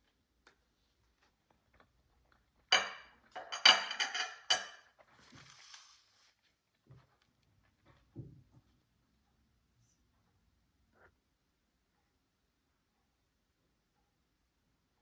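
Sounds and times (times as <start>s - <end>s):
dishes clinking: 2.7s - 4.9s
soft rustle: 5.0s - 8.9s.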